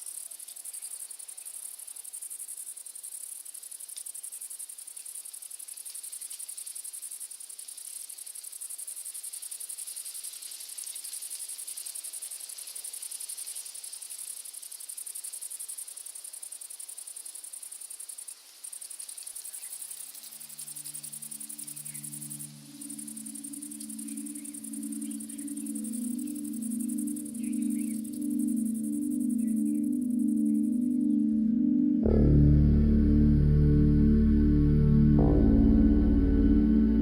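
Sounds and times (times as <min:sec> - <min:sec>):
insects trilling: 0:00.0 - 0:32.3
soft low music chord: 0:21.1 - 0:37.0.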